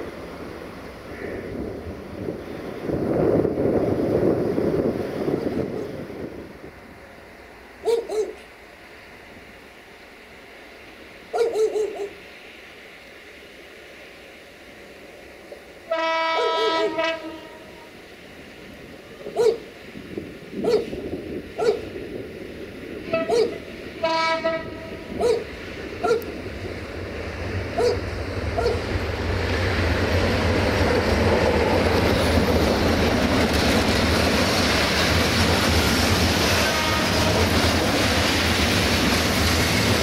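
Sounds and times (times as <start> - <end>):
train rumble: 0.0 - 40.0
train horn blasts: 15.9 - 18.0, 23.0 - 25.1, 36.5 - 37.6.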